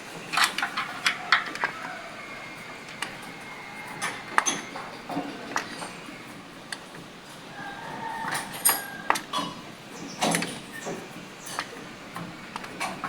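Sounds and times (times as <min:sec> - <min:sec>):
hand tools clicking on metal: 0:00.2 - 0:06.0, 0:08.3 - 0:09.6.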